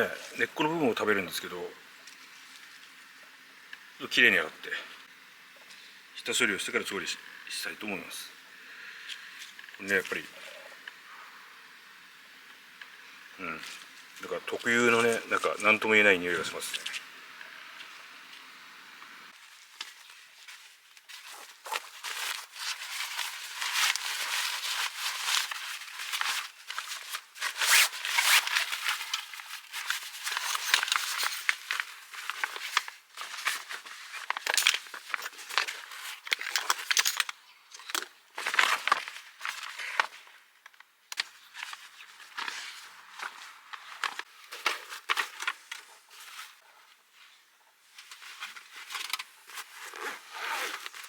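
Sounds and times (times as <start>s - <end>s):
plant material rustling and tearing: 19.7s - 36.3s.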